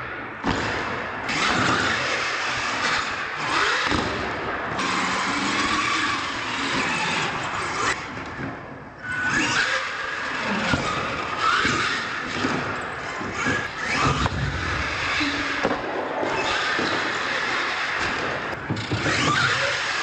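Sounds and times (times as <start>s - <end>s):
toy truck motor revving: 4.8s - 8.0s.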